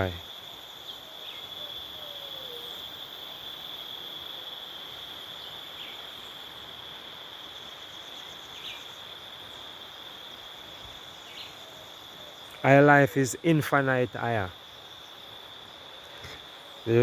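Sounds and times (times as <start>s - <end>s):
background hiss: 0.0s - 17.0s
insects trilling: 0.0s - 17.0s.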